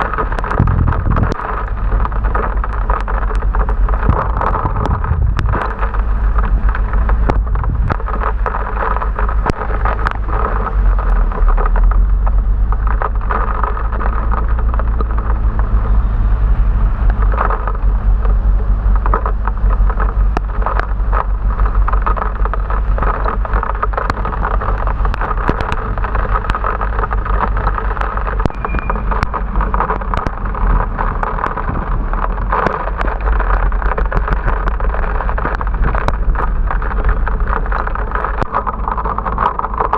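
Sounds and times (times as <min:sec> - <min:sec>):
rain and road spray hiss: 0:00.0 - 0:39.9
wind rumbling on microphone: 0:00.0 - 0:39.9
sharp ticks: 0:17.1 - 0:39.9.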